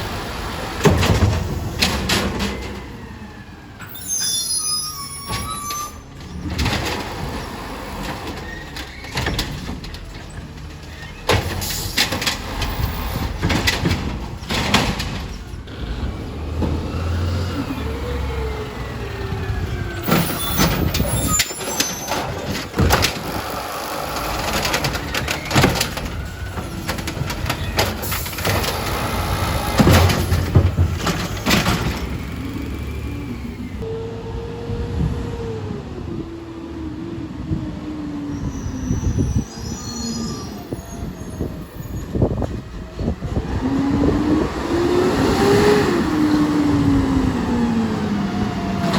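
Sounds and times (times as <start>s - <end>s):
metal clanks and bangs: 0.8s - 2.9s, 8.0s - 15.7s, 20.0s - 32.4s.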